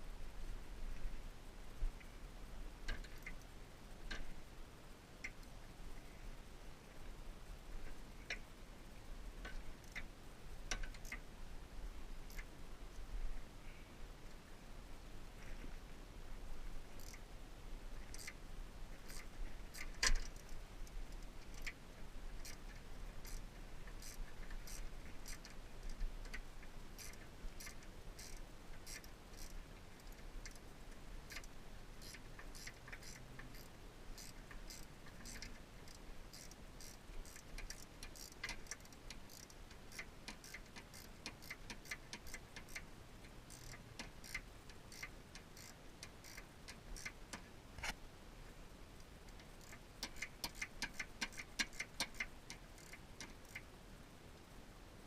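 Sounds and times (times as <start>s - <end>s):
hand tools clicking and tapping: 31.3s - 42.8s, 49.3s - 53.6s.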